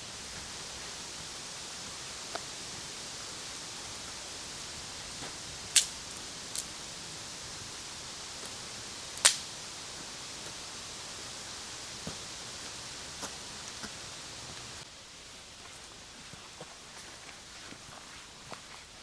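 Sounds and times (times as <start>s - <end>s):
steady outdoor hiss: 0.0s - 19.0s
faint ticks: 1.7s - 9.7s
dry wood snapping: 5.7s - 6.8s, 9.2s - 9.5s.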